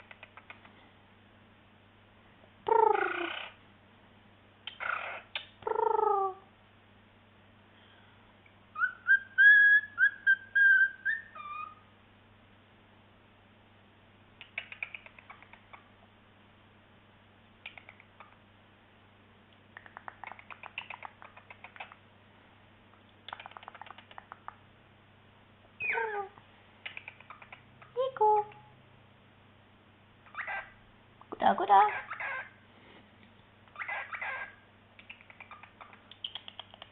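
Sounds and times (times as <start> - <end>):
cockatiel chattering: 4.7 - 5.5, 14.4 - 15.9, 17.6 - 18.4, 19.8 - 22.0, 23.3 - 24.6, 26.8 - 28.0, 30.3 - 30.8, 31.9 - 32.6, 33.7 - 36.9
cockatiel whistling: 8.8 - 11.8.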